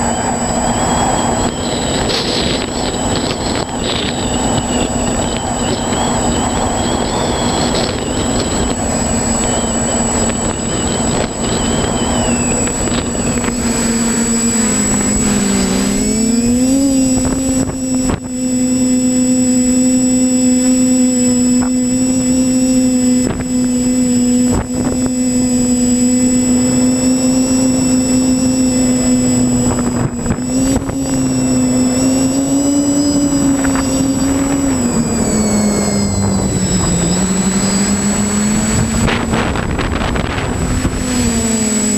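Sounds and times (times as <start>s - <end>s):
drone propellers whining: 0.0s - 41.9s
wind hiss on microphone: 23.1s - 41.9s.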